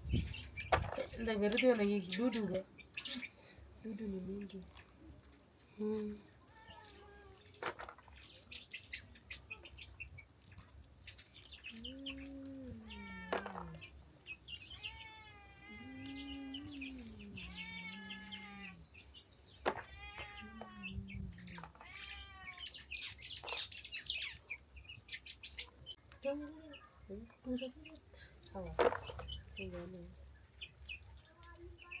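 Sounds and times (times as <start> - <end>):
high chirps and ticks: 4.0 - 32.0
cat meowing: 12.1 - 13.8, 14.7 - 18.8, 19.8 - 22.7.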